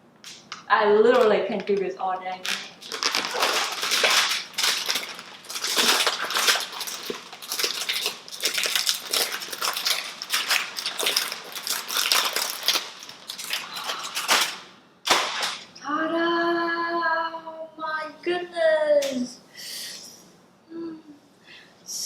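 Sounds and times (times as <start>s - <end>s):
packaging crinkling and tearing: 0.3s - 15.8s.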